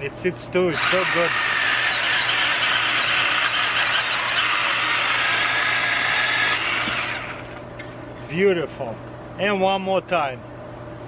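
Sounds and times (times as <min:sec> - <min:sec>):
chainsaw cutting through log: 0:00.7 - 0:07.6.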